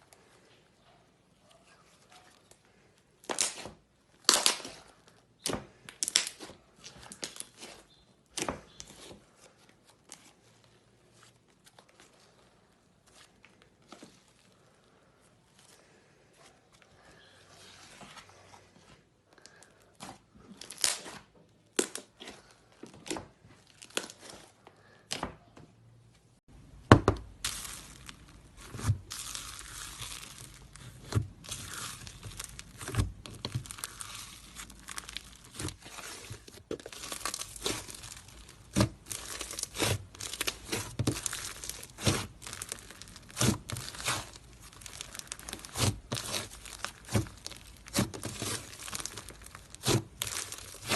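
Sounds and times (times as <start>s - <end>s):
slime squeezed and pulled apart: 27.4s - 50.9s.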